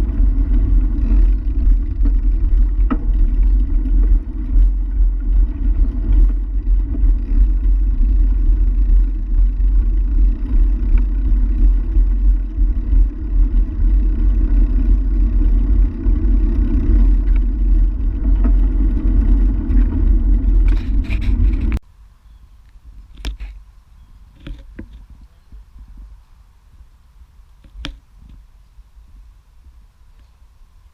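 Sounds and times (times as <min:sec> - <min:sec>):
wind buffeting microphone: 0:00.0 - 0:21.8
bicycle tyre and road noise: 0:00.0 - 0:21.9.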